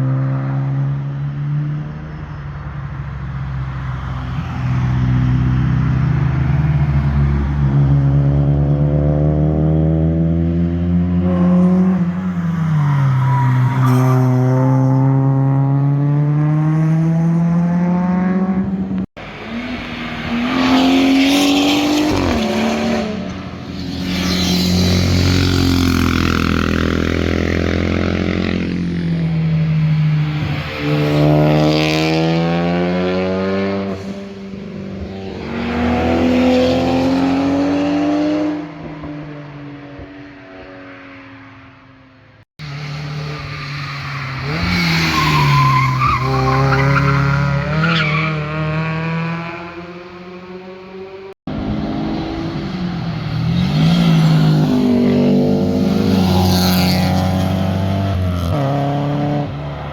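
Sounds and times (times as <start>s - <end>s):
cars revving past: 3.4s - 41.7s, 42.6s - 59.9s.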